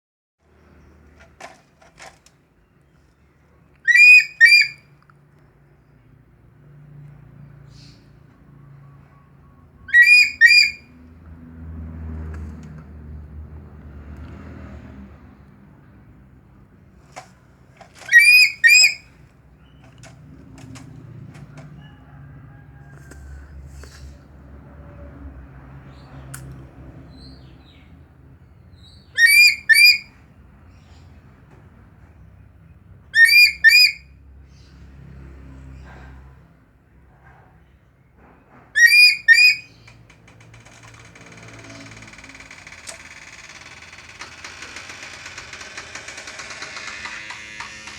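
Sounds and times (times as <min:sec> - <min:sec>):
eagle shrill calls: 0:03.9 - 0:04.8, 0:09.9 - 0:10.9, 0:18.1 - 0:19.1, 0:29.2 - 0:30.1, 0:33.2 - 0:34.0, 0:38.8 - 0:39.8.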